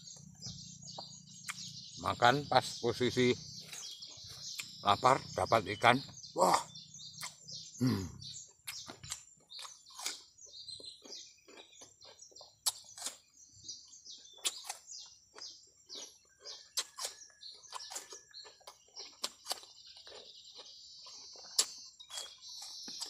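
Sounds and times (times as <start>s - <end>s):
small birds chirping: 0.0s - 23.0s
man chewing and lip-smacking: 0.2s - 1.8s, 3.6s - 4.8s, 6.6s - 7.5s, 8.4s - 23.0s.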